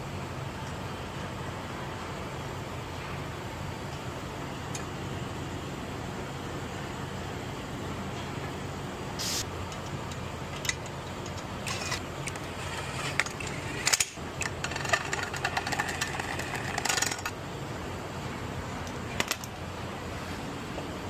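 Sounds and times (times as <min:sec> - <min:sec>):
steady low hum: 0:00.0 - 0:21.0
tools and parts clattering: 0:09.7 - 0:17.4.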